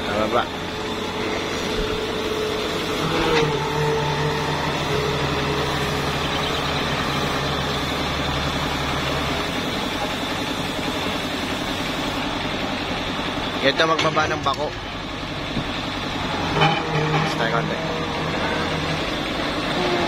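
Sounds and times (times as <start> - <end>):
excavator diesel engine running: 0.0 - 20.0
deep hum: 14.8 - 20.0.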